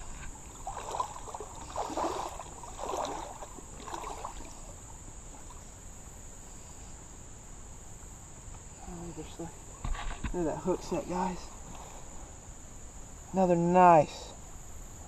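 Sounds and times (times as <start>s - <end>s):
insects buzzing: 0.0s - 15.0s
muffled rustling: 9.7s - 11.8s.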